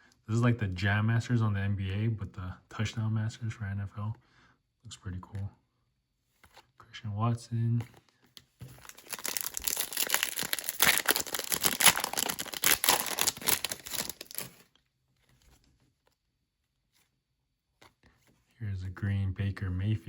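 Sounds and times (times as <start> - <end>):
foil wrapper tearing and crinkling: 8.7 - 14.6.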